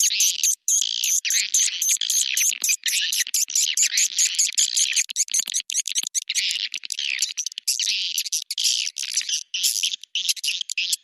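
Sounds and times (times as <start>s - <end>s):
rapid high-pitched bird twittering: 0.0s - 11.0s.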